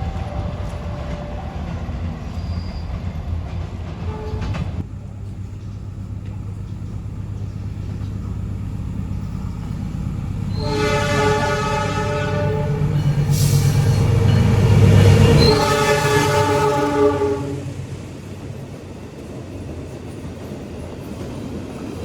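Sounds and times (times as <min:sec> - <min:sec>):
locomotive engine rumble: 0:00.0 - 0:21.9
locomotive air horn blast: 0:04.1 - 0:04.9, 0:10.4 - 0:14.3, 0:15.0 - 0:17.8.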